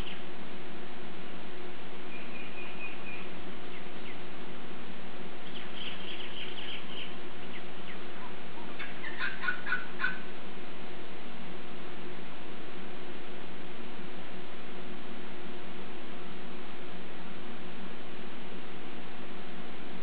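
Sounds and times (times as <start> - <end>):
birds chirping: 0.0 - 0.3, 2.0 - 4.3, 5.4 - 10.2
steady low hum: 0.0 - 20.0.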